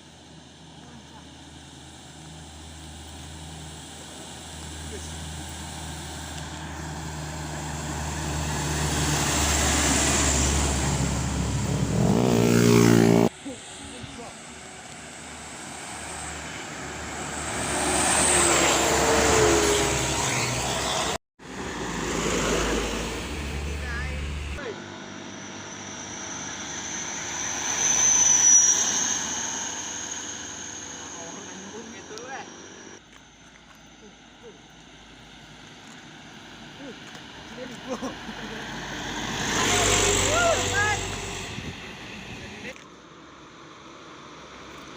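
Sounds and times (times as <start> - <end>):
high whine: 0.0 - 33.8
heavy truck approaching: 0.1 - 13.8, 14.5 - 42.7.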